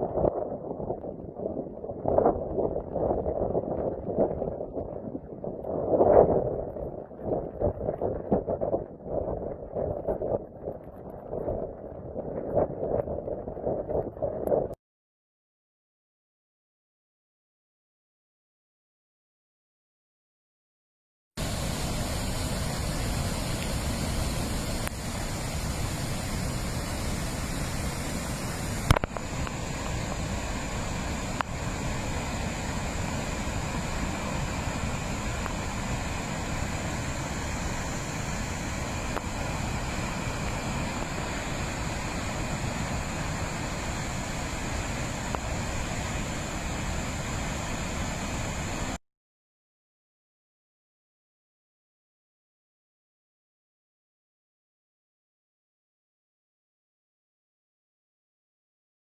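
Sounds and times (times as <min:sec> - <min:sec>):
wind rumbling on microphone: 0:00.0 - 0:14.8
click: 0:28.9 - 0:29.2.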